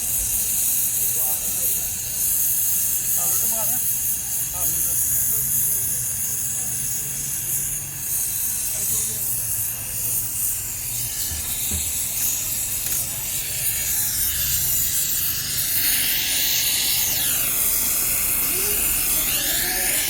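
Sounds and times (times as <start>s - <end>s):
steady high hiss: 7.9s - 20.0s.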